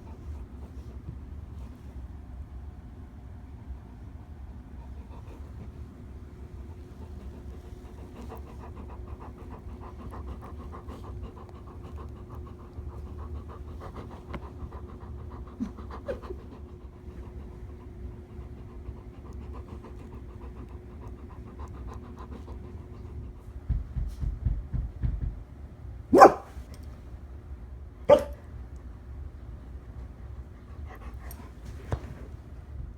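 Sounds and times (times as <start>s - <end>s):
faint steady hum: 0.0s - 32.9s
dog panting rapidly: 4.6s - 25.3s.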